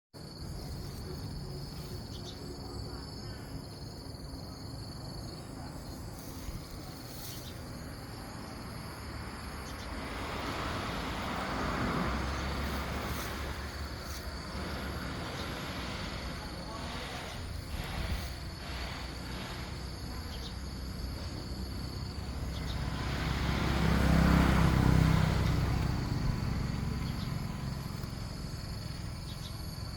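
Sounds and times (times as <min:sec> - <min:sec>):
insects droning: 0:00.2 - 0:29.9
rushing noise with low rumble: 0:06.0 - 0:19.8
rough background noise: 0:12.3 - 0:22.1.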